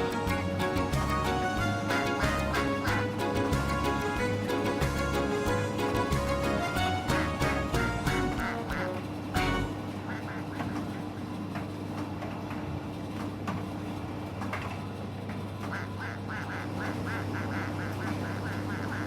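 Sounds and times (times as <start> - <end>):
tumble dryer motor hum: 0.0 - 10.0
quacking squeak: 5.4 - 11.2, 15.7 - 19.0.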